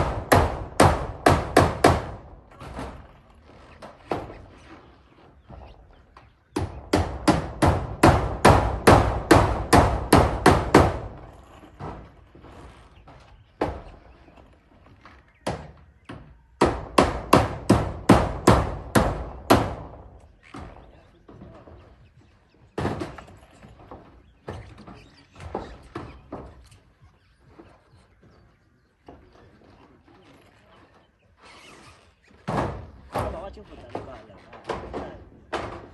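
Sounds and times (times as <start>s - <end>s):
hammer striking nails into metal roofing: 0.0s - 3.1s, 6.5s - 14.0s, 15.4s - 21.5s, 22.8s - 26.6s, 32.4s - 35.9s.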